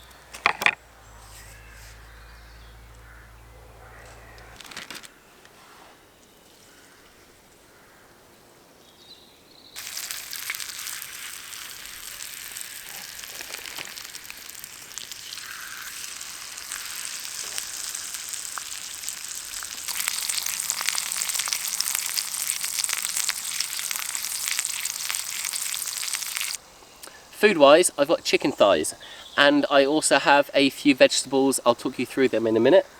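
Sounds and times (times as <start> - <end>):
chicken sizzling in a pan: 9.8 - 26.6
fat popping: 9.8 - 27.2.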